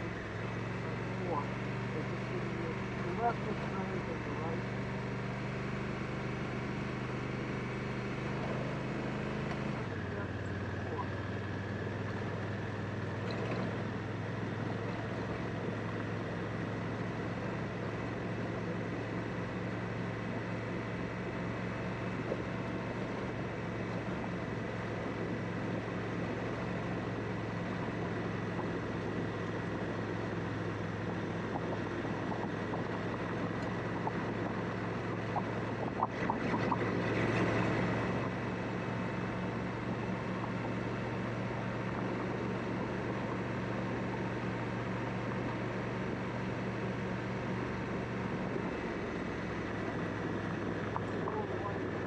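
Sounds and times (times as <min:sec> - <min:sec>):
motorcycle engine running: 0:00.0 - 0:52.0
wind noise of riding: 0:20.2 - 0:52.0.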